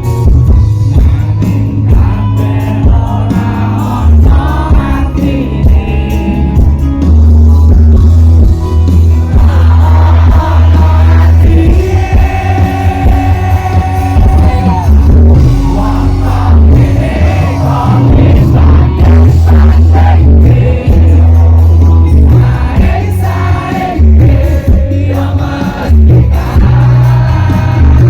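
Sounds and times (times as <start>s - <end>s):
heavy bass: 0.0s - 28.0s
live band playing: 0.0s - 28.0s
person singing: 0.8s - 6.8s, 9.2s - 28.0s.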